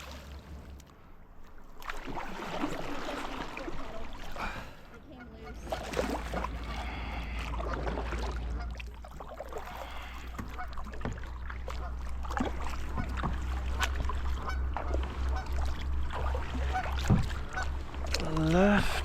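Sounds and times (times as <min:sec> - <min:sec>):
paddle strokes splashing: 0:00.0 - 0:19.0
geese honking: 0:14.3 - 0:15.7.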